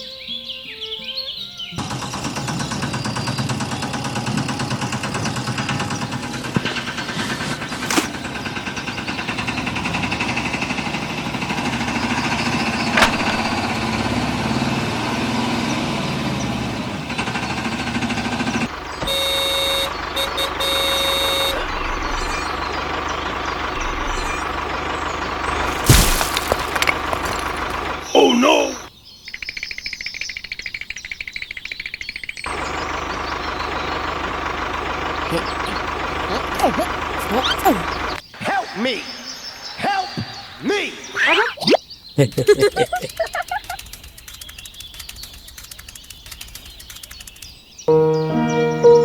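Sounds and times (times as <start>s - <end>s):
vehicle engine running: 1.8s - 28.1s, 32.5s - 38.2s.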